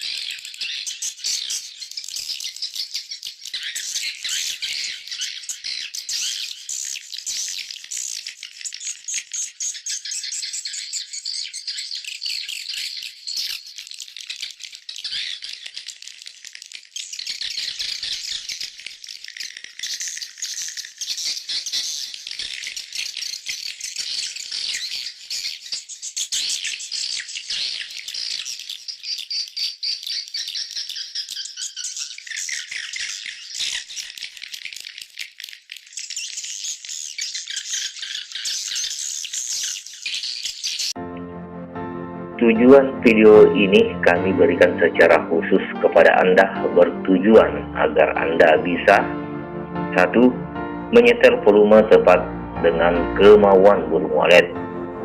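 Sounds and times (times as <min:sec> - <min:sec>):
swiftlets twittering: 0:42.5 - 0:49.0.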